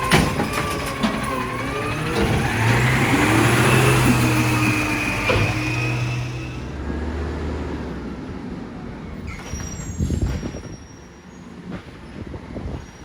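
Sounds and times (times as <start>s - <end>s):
clatter and knocks: 0.0s - 6.6s
faint high squeals: 0.0s - 6.8s, 9.2s - 11.5s
truck engine running: 0.0s - 6.8s.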